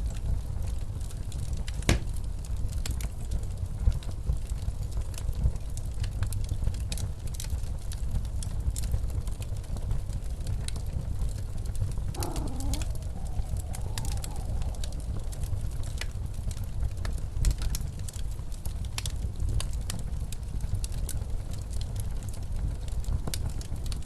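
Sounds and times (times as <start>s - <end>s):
fireplace crackling and popping: 0.0s - 24.0s
low rumble of wind: 0.0s - 24.0s
wavering wind howl: 10.6s - 18.0s.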